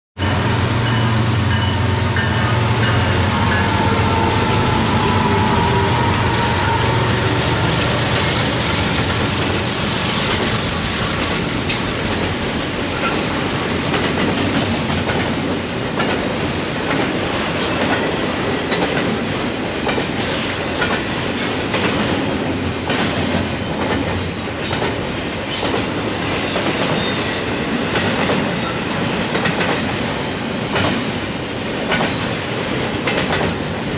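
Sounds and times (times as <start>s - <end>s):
locomotive engines droning: 0.2s - 13.6s
freight cars rumbling: 0.2s - 16.2s.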